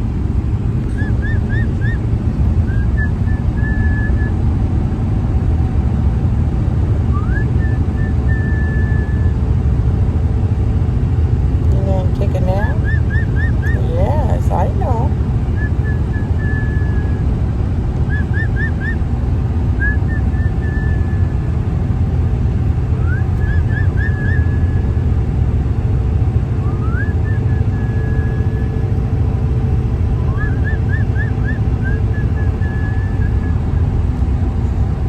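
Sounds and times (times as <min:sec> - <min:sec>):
road rumble inside moving car: 0:00.0 - 0:35.0
emu whistling chirps: 0:01.0 - 0:02.0, 0:02.7 - 0:04.3, 0:07.1 - 0:09.3, 0:12.8 - 0:13.8, 0:15.6 - 0:17.2, 0:18.1 - 0:19.0, 0:23.0 - 0:24.8, 0:26.6 - 0:28.7, 0:30.2 - 0:33.6.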